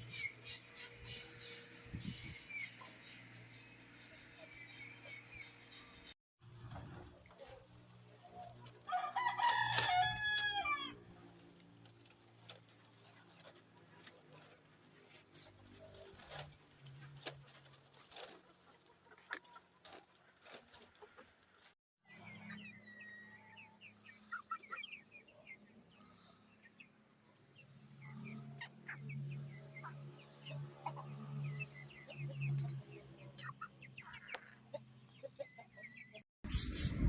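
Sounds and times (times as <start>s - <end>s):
chickens clucking: 0.0s - 8.9s, 10.8s - 36.2s.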